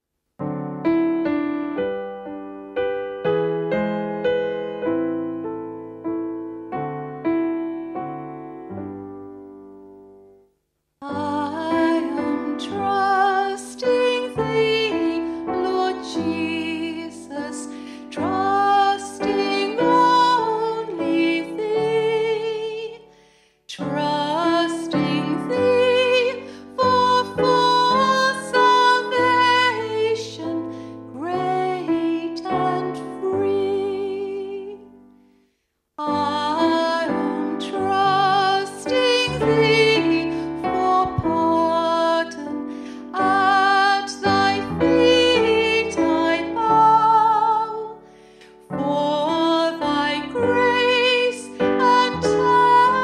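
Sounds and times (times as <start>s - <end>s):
piano accompaniment: 0.4s - 10.4s, 11.0s - 23.0s, 23.8s - 35.1s, 36.0s - 53.0s
woman singing with vibrato: 11.0s - 23.0s, 23.7s - 30.6s, 31.2s - 34.8s, 36.0s - 48.0s, 48.7s - 53.0s.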